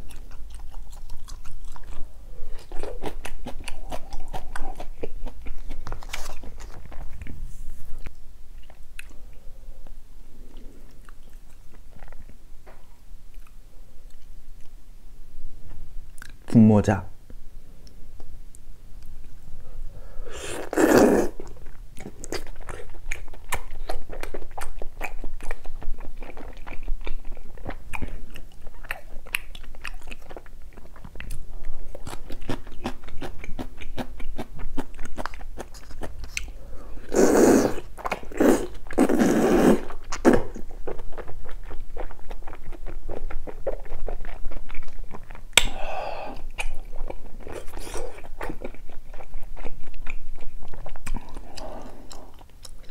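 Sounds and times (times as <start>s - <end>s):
wet chewing and smacking: 0.0s - 9.2s, 10.5s - 14.8s, 21.3s - 36.6s, 37.8s - 39.2s, 39.8s - 45.8s, 46.4s - 52.9s.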